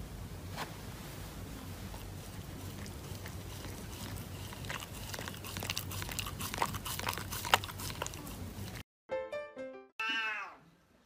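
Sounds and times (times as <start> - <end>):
dog chewing paper: 1.8 - 8.8.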